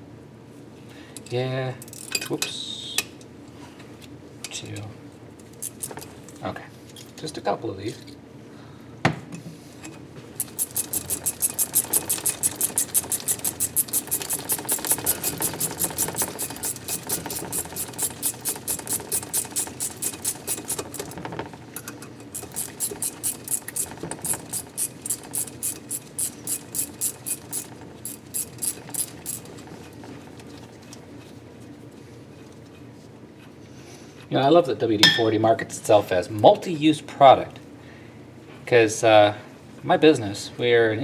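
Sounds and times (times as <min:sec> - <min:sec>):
hand tool strokes on bolt threads: 0:05.6 - 0:06.2, 0:10.4 - 0:21.3, 0:22.3 - 0:30.6.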